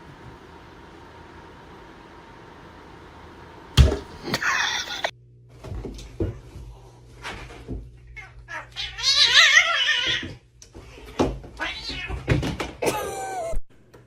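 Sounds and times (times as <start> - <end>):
cat yowling: 8.2 - 10.3.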